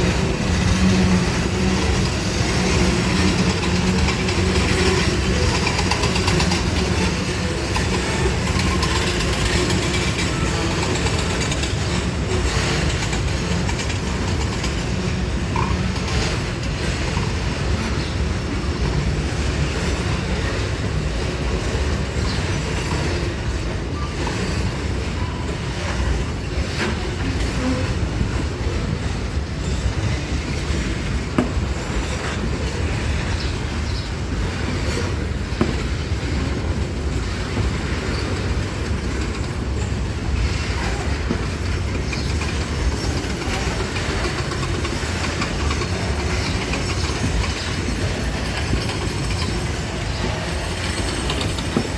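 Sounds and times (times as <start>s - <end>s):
freight train rumbling past: 0.0s - 51.9s
wheels clattering over rail joints: 0.0s - 51.9s.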